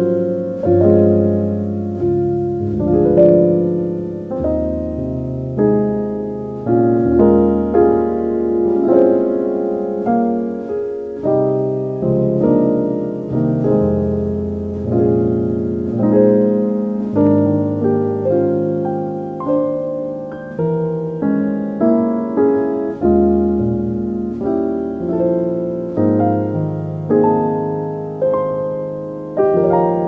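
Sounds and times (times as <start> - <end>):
soft solo piano: 0.0 - 30.0.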